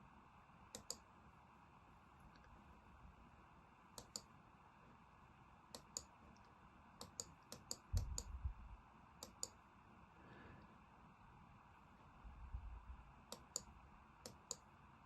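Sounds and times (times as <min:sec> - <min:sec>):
computer mouse clicking: 0:00.7 - 0:01.0, 0:04.0 - 0:04.4, 0:05.7 - 0:08.4, 0:09.2 - 0:09.6, 0:13.3 - 0:14.7.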